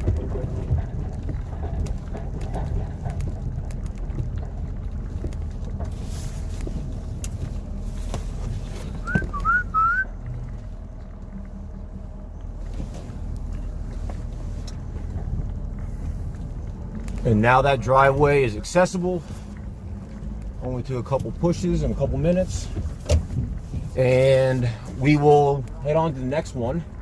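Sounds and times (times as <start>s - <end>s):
diesel truck engine rumbling: 0.0s - 27.0s
short rising chirps: 9.1s - 10.0s.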